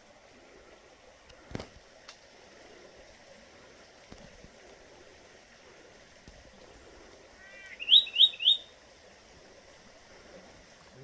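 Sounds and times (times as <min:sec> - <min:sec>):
faint flowing water: 0:00.0 - 0:11.0
bird whistling: 0:07.6 - 0:08.7.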